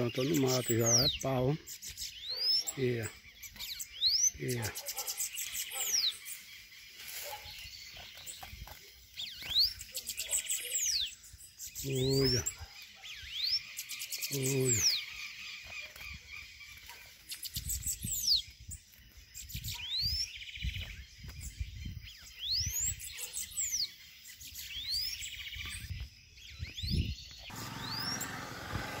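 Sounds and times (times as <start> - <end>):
bird high swept whistles: 26.6 - 29.0.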